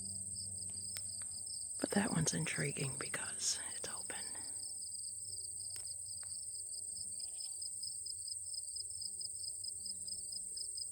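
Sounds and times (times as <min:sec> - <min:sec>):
lower pulsing insect trill: 0:00.0 - 0:10.9
insects high-pitched trill: 0:04.5 - 0:10.9.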